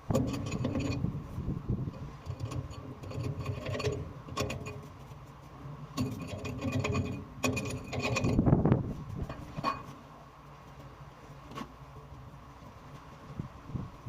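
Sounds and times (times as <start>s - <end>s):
low machinery hum: 0.0s - 14.0s
metal tools clinking and scraping: 2.0s - 4.9s, 6.0s - 8.4s, 9.2s - 10.0s.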